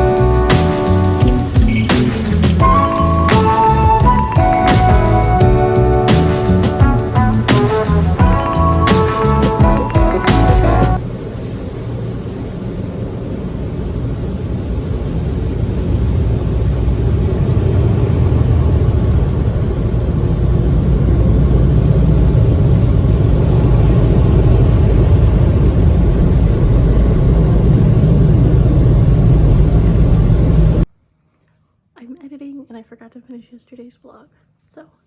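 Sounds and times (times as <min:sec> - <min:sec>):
car rumble: 0:00.0 - 0:30.9.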